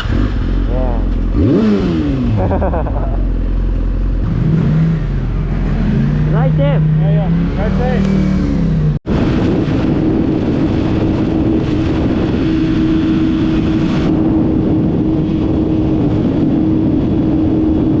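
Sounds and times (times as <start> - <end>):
motorcycle engine: 0.0 - 18.0
wind noise on microphone: 3.8 - 18.0.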